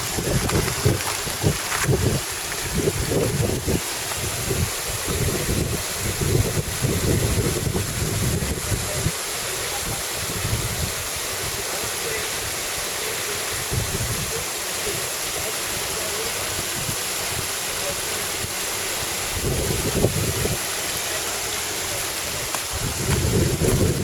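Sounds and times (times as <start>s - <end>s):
wind buffeting microphone: 0.0s - 11.6s, 13.5s - 14.4s, 19.3s - 20.7s, 21.7s - 24.0s
waterfall rushing: 0.0s - 24.0s.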